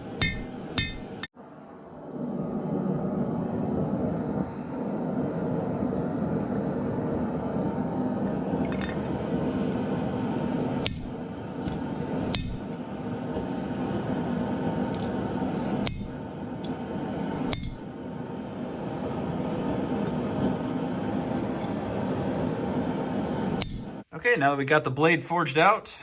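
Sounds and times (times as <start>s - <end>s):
forge noise: 0.0s - 25.8s
hammer striking steel on anvil: 0.2s - 1.3s, 10.8s - 11.2s, 12.3s - 12.7s, 15.8s - 16.3s, 17.5s - 18.0s, 23.6s - 24.0s
high metallic ring: 0.2s - 1.3s, 17.5s - 18.0s, 23.6s - 24.0s.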